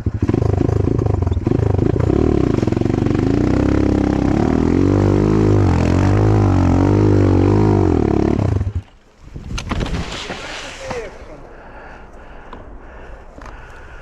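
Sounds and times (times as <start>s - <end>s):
motorcycle engine revving hard: 0.0s - 8.8s.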